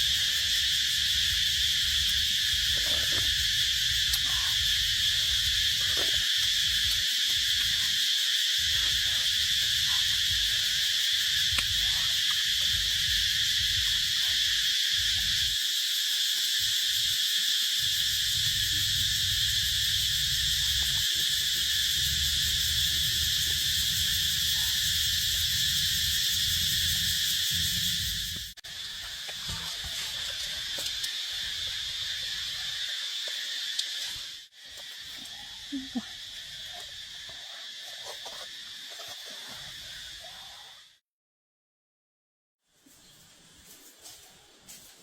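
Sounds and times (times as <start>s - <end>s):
high insect drone: 0.0s - 41.0s.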